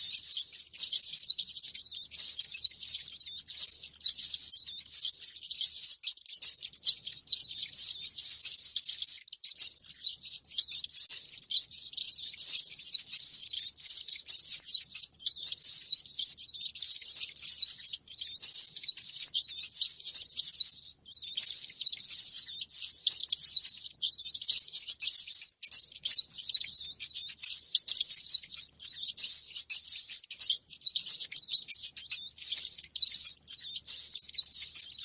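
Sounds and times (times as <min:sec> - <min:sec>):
rats squeaking: 0:00.0 - 0:35.0.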